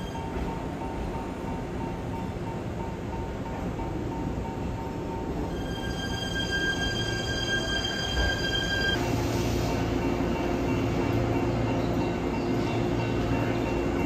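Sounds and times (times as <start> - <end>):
train wheels squealing: 0.0 - 0.6, 5.4 - 13.8.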